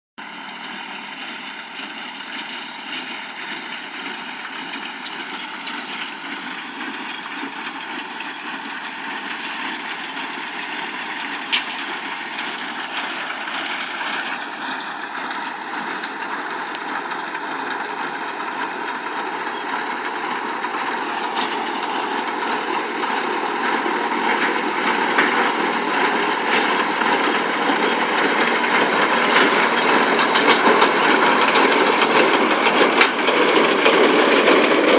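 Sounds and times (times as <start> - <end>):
tractor and baler running: 0.2 - 34.9.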